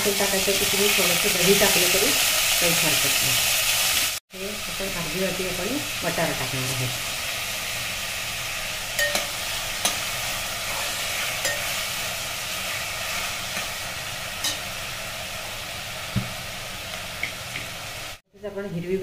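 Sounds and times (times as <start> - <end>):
vegetables sizzling: 0.0 - 18.2
steel spoon clinking on pot: 9.0 - 10.0, 11.4 - 11.8.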